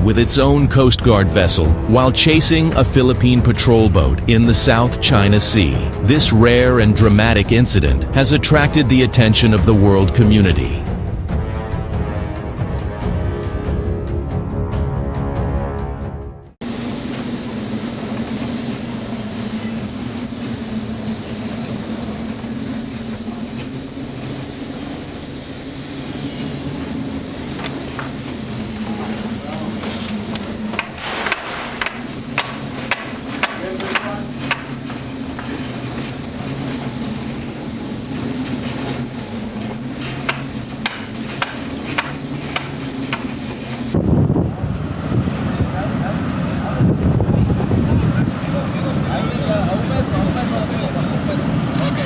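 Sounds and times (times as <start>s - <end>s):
rushing noise: 0.0s - 14.3s
low machinery hum: 0.0s - 15.0s, 16.7s - 52.0s
boat engine drone: 0.0s - 16.0s, 16.6s - 52.0s.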